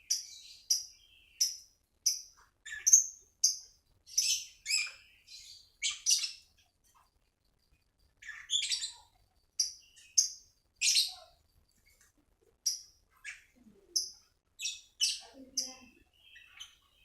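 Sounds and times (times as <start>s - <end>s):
songbird chirps and trills: 0.0s - 17.0s.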